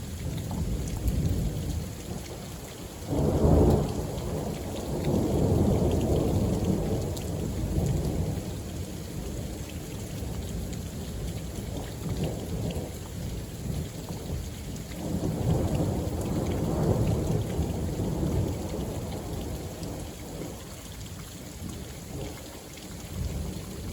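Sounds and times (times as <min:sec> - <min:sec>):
steady rain: 0:00.0 - 0:23.9.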